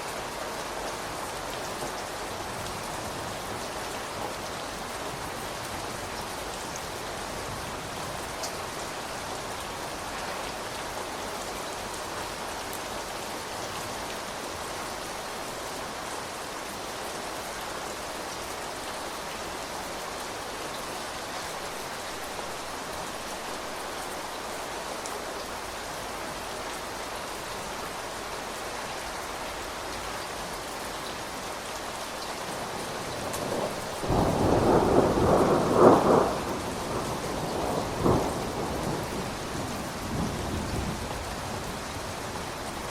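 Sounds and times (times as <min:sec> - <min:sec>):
steady rain falling: 0:00.0 - 0:42.9
thunder clap: 0:33.3 - 0:39.0.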